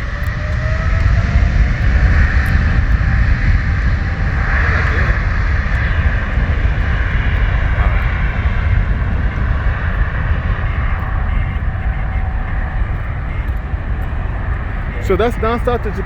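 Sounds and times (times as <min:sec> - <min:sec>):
jet engine high whine: 0:00.0 - 0:16.0
jet engines deep rumble: 0:00.0 - 0:16.0.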